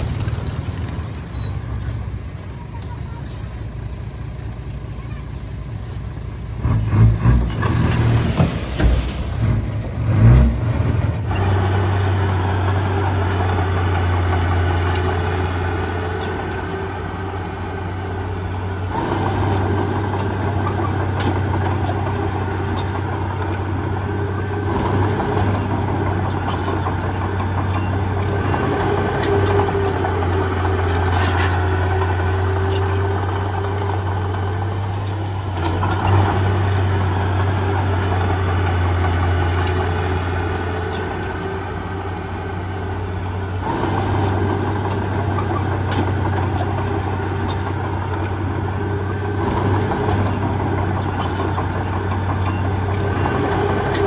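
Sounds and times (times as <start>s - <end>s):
heavy diesel engine running: 0.0s - 54.0s
loud rumbling and thumps: 6.6s - 16.1s.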